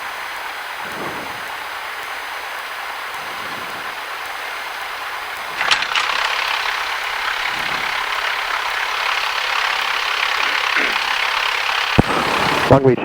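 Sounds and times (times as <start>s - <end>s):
intercom hiss of idling engine: 0.0s - 13.0s
sharp crackle: 3.2s - 12.8s.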